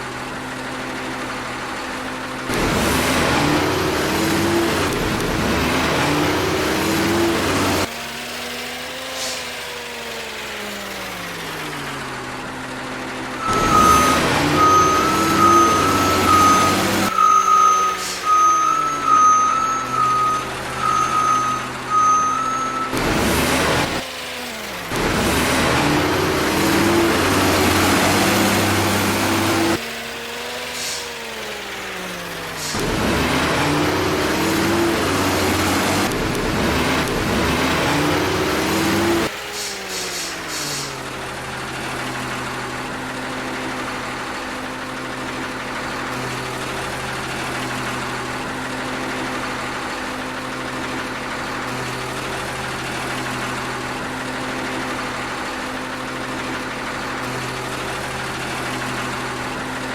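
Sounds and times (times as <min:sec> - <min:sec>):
truck engine winding down: 0:00.0 - 0:59.9
pulsing reversing beeper: 0:13.4 - 0:24.0.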